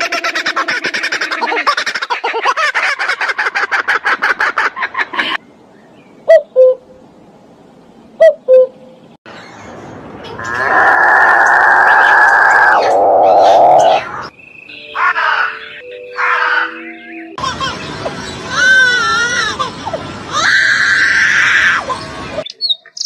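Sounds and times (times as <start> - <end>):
rapid pulsed bird calls: 11.3 - 17.4.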